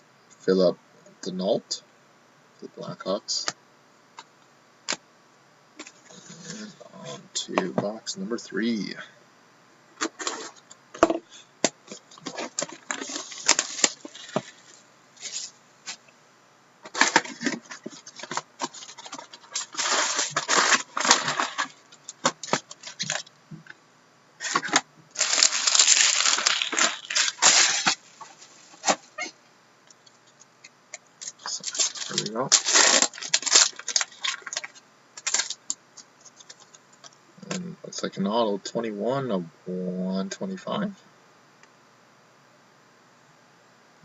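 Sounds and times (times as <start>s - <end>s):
foil packs tearing: 12.2s - 15.6s, 16.9s - 23.3s, 24.4s - 29.1s, 31.2s - 35.7s.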